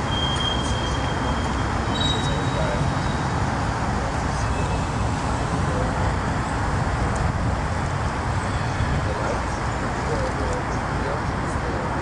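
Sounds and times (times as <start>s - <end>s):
freight train rumbling over bridge: 0.0s - 9.0s.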